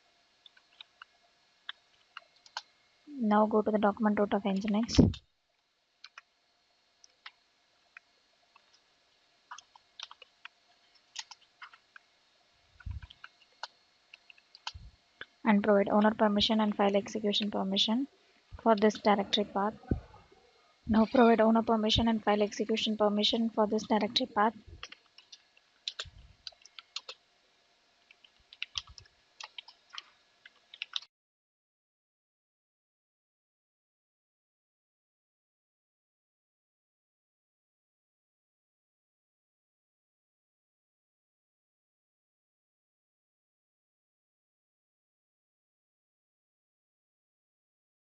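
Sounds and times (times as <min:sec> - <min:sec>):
computer keyboard typing: 0:06.0 - 0:06.3, 0:09.5 - 0:11.8, 0:21.0 - 0:27.2, 0:28.1 - 0:31.1.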